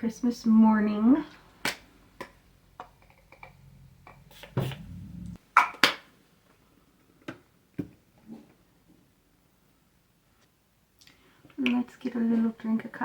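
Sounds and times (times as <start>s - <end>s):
fragrance bottle spraying: 4.2s - 5.3s.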